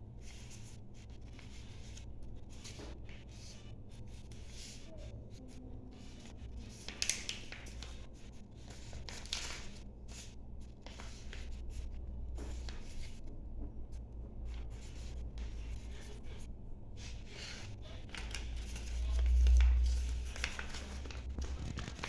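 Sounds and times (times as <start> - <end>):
steady low hum: 0.0 - 22.0
paper rustling and creasing: 6.1 - 11.6, 17.0 - 22.0.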